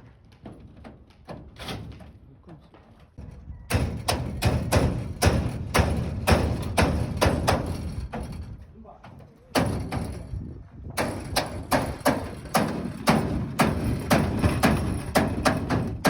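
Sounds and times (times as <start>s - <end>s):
hammer blows on metal roofing: 3.2s - 16.0s.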